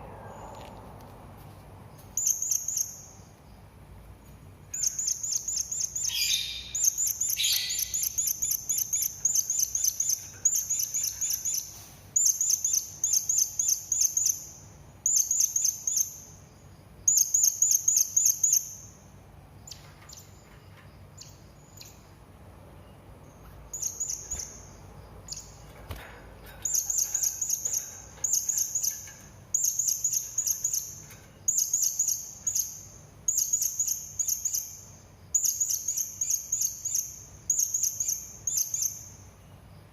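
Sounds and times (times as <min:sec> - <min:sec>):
parrots chirping: 0:04.8 - 0:11.6.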